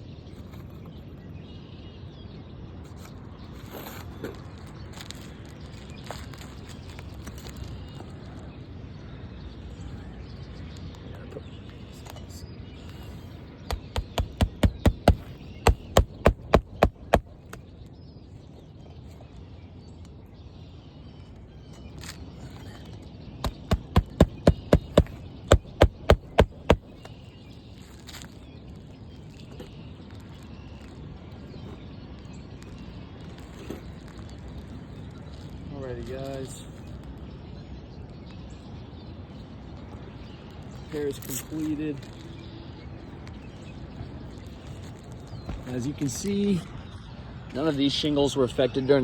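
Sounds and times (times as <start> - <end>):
hammer driving nails: 13.7 - 17.6, 23.4 - 27.0.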